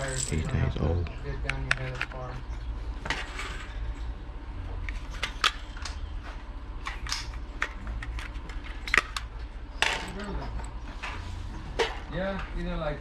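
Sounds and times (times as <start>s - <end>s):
steady low rumble: 0.0s - 1.7s.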